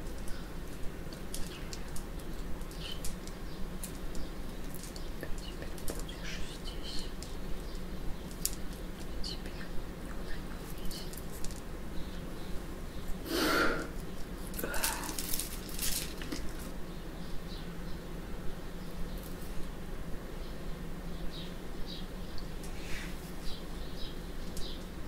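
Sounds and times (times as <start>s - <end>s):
rustling: 0.0s - 16.8s
low steady hum: 0.0s - 25.0s.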